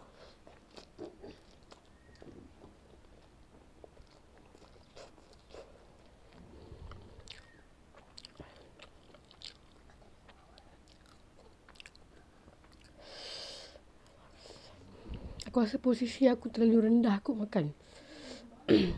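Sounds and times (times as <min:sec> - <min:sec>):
chewing noodles: 0:00.0 - 0:13.2
mouth clicks and smacks: 0:00.4 - 0:13.0.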